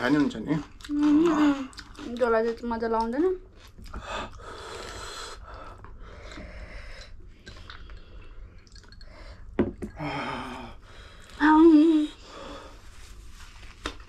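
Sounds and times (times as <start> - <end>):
wet chewing of noodles: 0.0 - 6.5.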